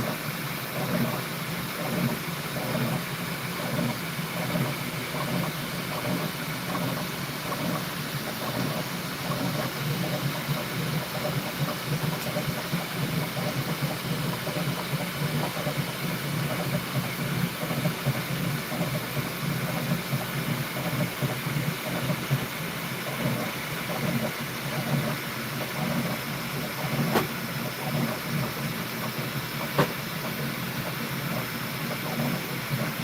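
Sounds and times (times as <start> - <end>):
constant hiss: 0.0 - 33.0
printer motors and fans running: 0.0 - 33.0.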